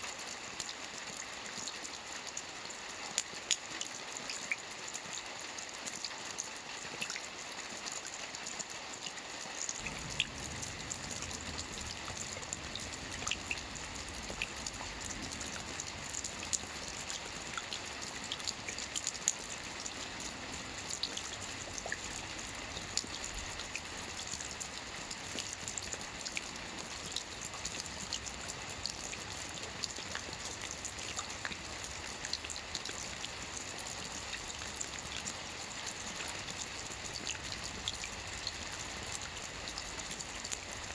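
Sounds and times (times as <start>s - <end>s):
rain on a roof: 0.0s - 40.9s
low rumble: 9.8s - 17.4s.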